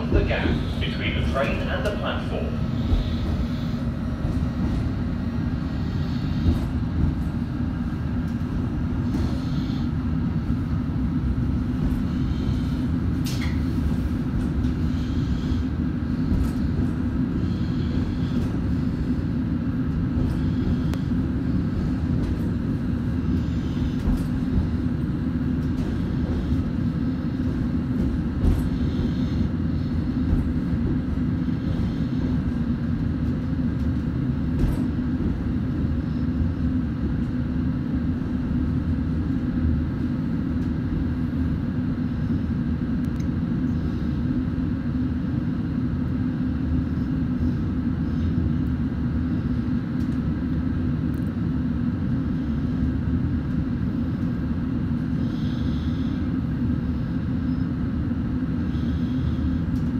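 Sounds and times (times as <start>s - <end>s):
train wheels rumbling: 0.0s - 36.2s
steady hum: 0.0s - 59.9s.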